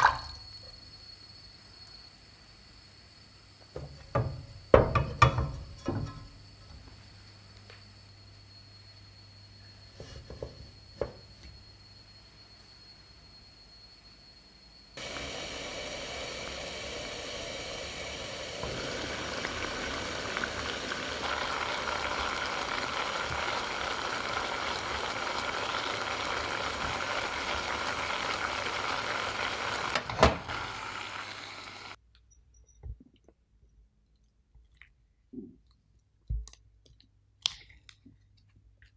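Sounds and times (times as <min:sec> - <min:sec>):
small electric motor humming: 0:15.0 - 0:32.0.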